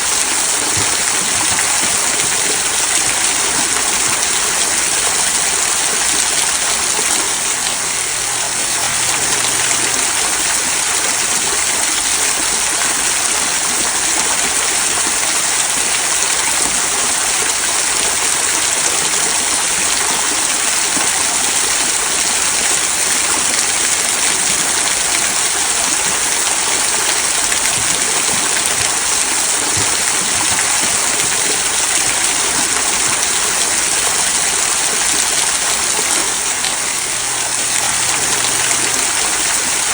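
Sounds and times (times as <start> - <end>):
small waterfall splashing over stones: 0.0 - 39.9.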